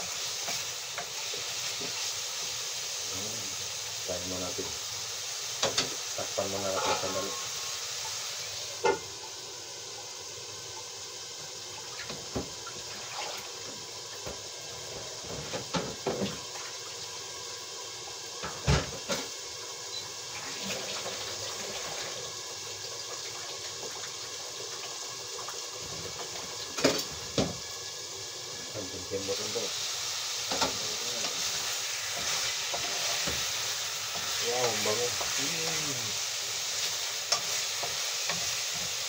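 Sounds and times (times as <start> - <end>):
food sizzling in a wok: 0.0 - 39.0.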